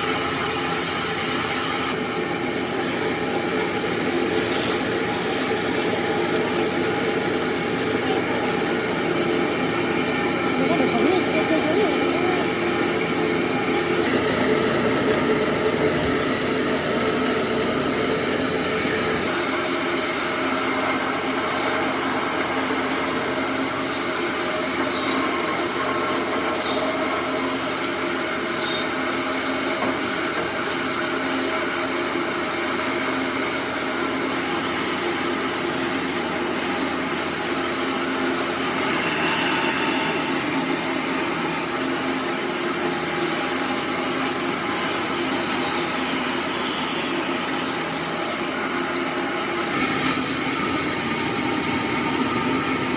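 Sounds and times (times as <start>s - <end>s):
power tool running: 0.0s - 52.9s
high wavering squeal: 33.6s - 52.9s.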